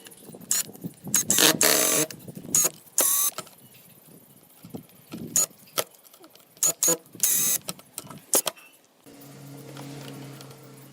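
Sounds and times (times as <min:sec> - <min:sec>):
small power tool motor bursts: 0:01.2 - 0:03.3, 0:06.6 - 0:07.6.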